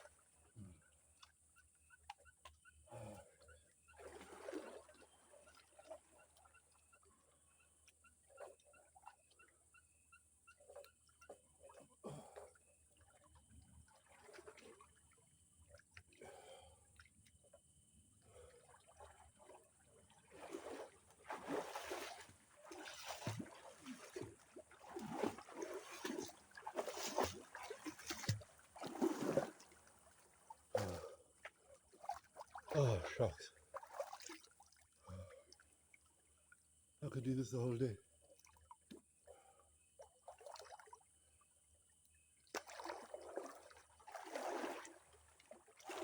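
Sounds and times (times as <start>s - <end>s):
water splashing from swimming: 2.0s - 9.4s, 10.6s - 17.2s, 18.2s - 35.7s, 40.0s - 41.0s, 42.5s - 46.0s.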